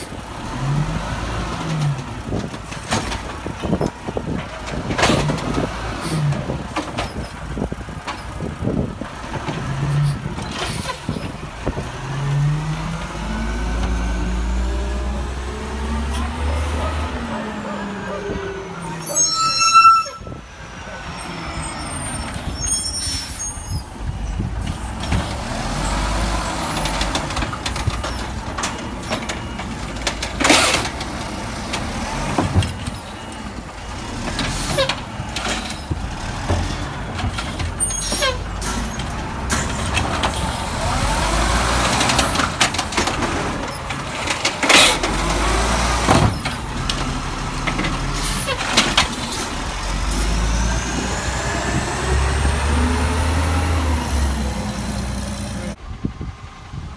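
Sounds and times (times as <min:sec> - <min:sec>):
garbage truck running: 0:00.0 - 0:56.9
sliding whines: 0:15.8 - 0:24.0.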